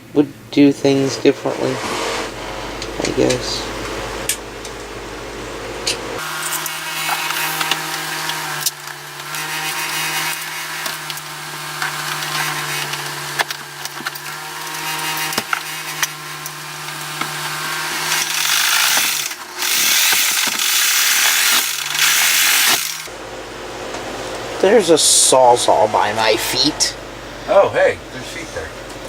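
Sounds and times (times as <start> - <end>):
reciprocating saw cutting: 6.2 - 23.1.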